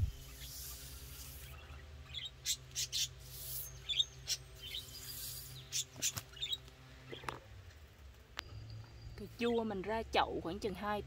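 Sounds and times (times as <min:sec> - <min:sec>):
birds chirping: 0:00.0 - 0:11.0
faint low hum: 0:00.0 - 0:11.0.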